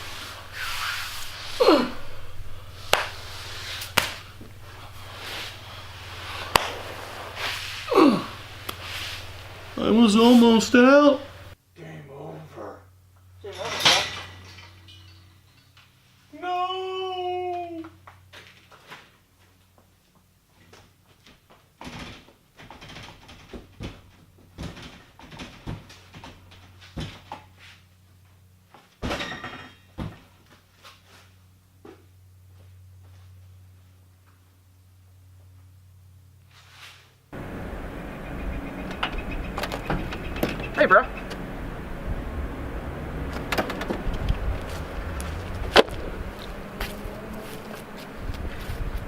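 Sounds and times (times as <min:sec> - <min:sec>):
steady low hum: 0:00.0 - 0:16.3, 0:37.2 - 0:49.0
man grunting and breathing hard: 0:01.4 - 0:02.3, 0:07.8 - 0:08.5
knocks and thumps: 0:38.8 - 0:41.4.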